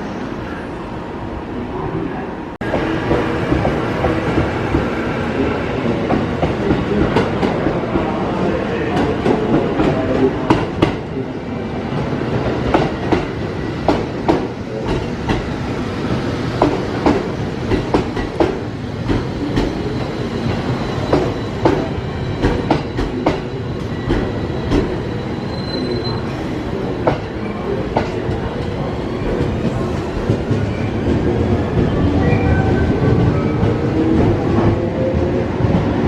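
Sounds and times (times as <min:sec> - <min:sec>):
train wheels clacking: 0:16.6 - 0:25.0
faint wheel squeal: 0:25.1 - 0:26.6.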